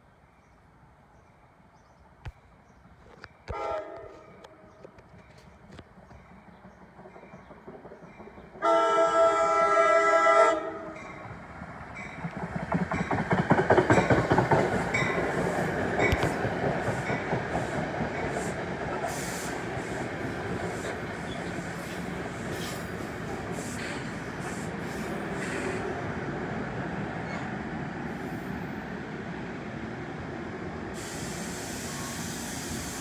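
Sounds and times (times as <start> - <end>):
train cars rumbling: 2.8 - 33.0
train wheels clattering over rail joints: 5.0 - 8.6, 12.0 - 19.2.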